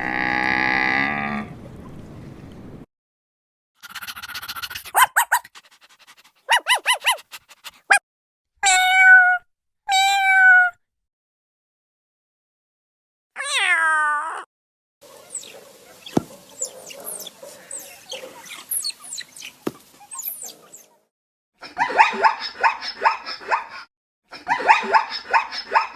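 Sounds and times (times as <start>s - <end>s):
dog barking: 4.8s - 5.6s, 6.4s - 8.0s, 15.2s - 18.6s, 21.7s - 23.8s, 24.5s - 25.9s
cat meowing: 8.6s - 10.8s, 13.4s - 14.5s.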